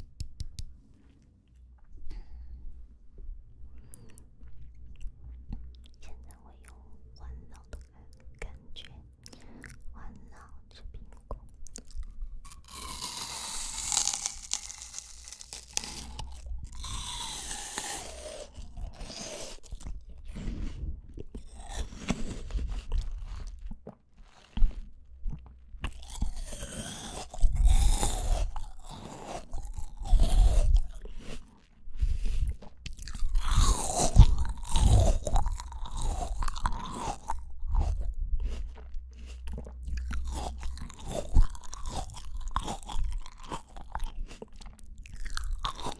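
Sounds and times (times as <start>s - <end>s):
crisp fruit bites and chewing: 11.1s - 45.9s.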